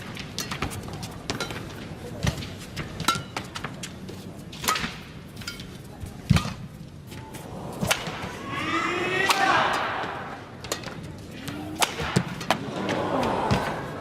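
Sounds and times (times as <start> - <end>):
racket hitting shuttlecock: 4.6 - 5.7, 7.8 - 8.3, 11.7 - 13.9.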